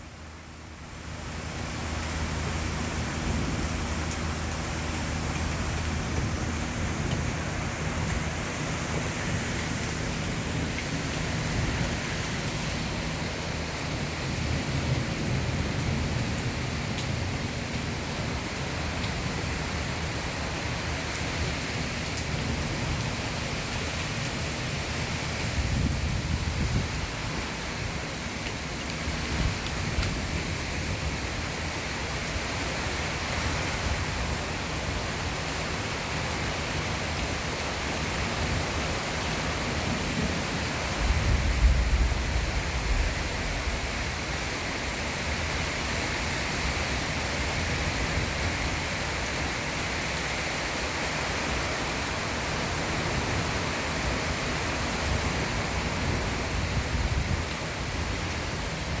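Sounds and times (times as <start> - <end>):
heavy rain pouring: 0.0 - 59.0
low rumble of thunder: 1.6 - 20.1, 25.4 - 28.1, 39.5 - 44.6.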